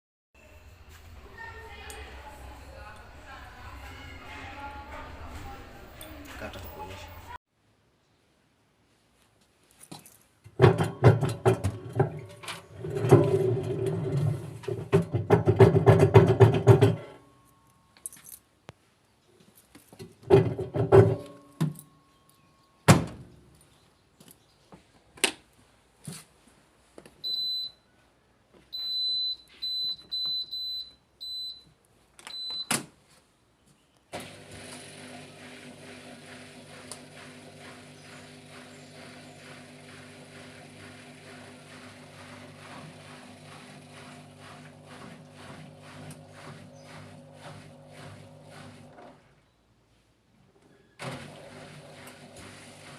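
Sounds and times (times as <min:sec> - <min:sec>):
washing machine humming: 0:10.5 - 0:17.0, 0:34.2 - 0:49.3, 0:51.0 - 0:52.9
washing machine rattling and knocking: 0:10.5 - 0:17.1, 0:20.2 - 0:21.4, 0:34.9 - 0:49.0.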